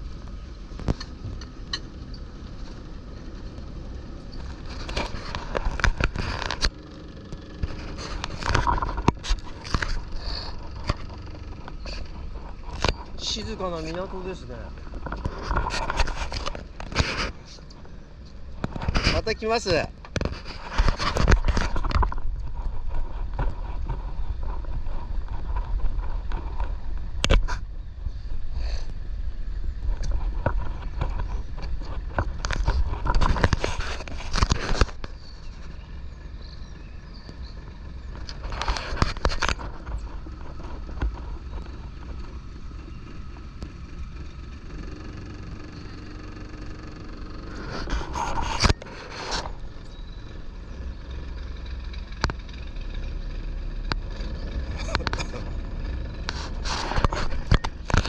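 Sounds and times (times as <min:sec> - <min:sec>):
boat engine rumbling: 0:00.0 - 0:58.0.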